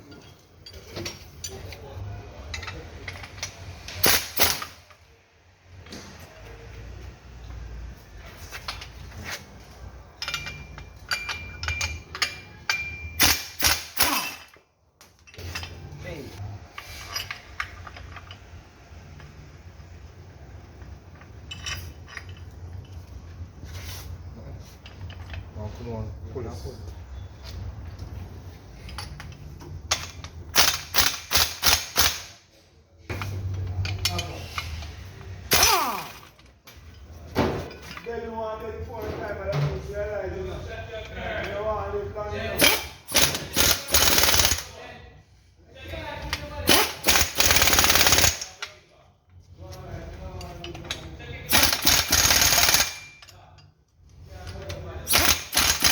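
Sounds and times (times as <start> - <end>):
metal tools clinking: 0.0 - 5.1, 8.2 - 19.4, 20.8 - 24.0, 24.6 - 25.8, 27.2 - 32.3, 33.1 - 38.8, 42.5 - 44.9, 45.9 - 55.9.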